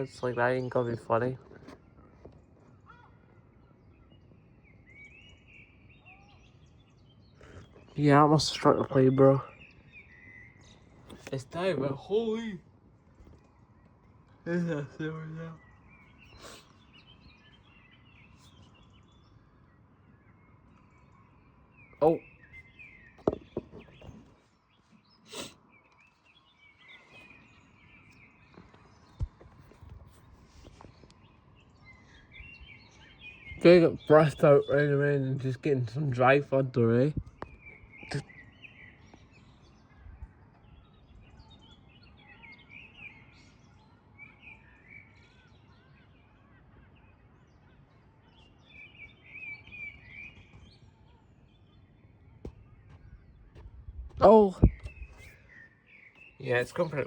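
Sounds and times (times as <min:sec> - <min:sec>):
faint bird chirps: 0:00.0 - 0:57.0
outdoor background noise: 0:00.0 - 0:57.0
sharp knock: 0:23.2 - 0:24.1.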